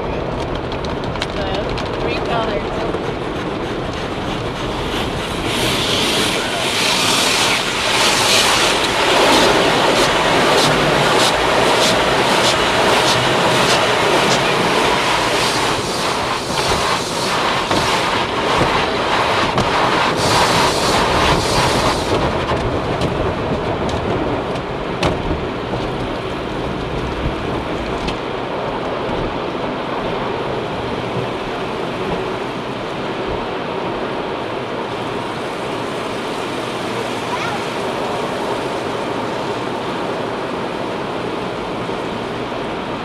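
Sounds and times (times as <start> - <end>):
water spraying on car body: 0.6 - 29.5
sharp water hits: 5.3 - 23.4.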